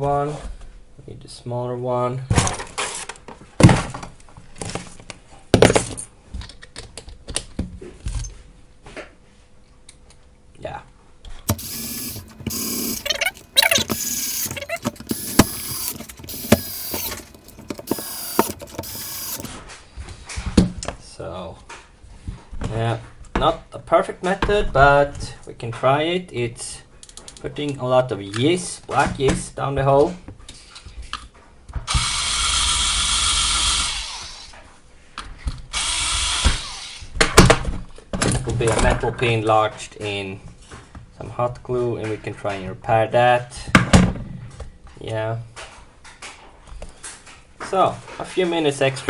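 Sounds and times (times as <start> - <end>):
sharp clicks: 11.5 - 19.5
small power tool running: 11.5 - 19.5.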